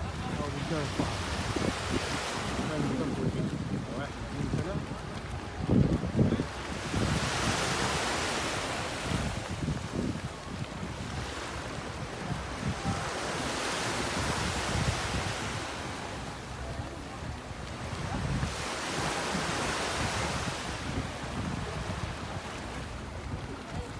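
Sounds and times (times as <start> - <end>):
sea waves washing: 0.0 - 23.9
wind buffeting microphone: 0.0 - 23.9.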